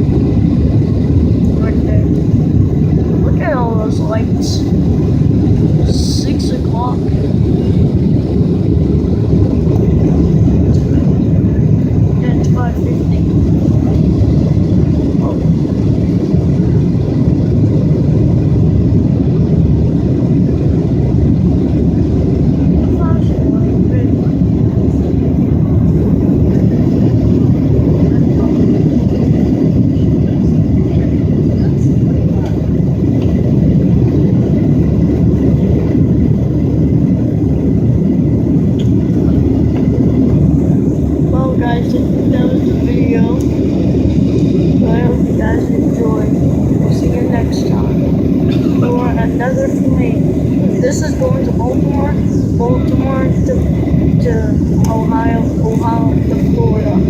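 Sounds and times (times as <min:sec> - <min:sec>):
airliner cabin engine rumble: 0:00.0 - 0:57.0
rushing air: 0:32.7 - 0:57.0.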